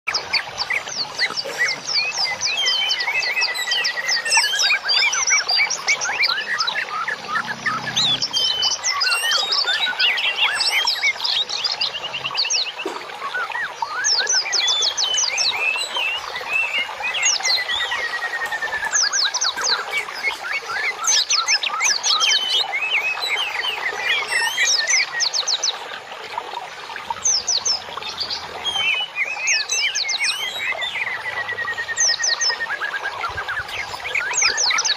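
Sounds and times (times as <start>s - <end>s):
songbirds chirping and singing: 0.1s - 34.9s.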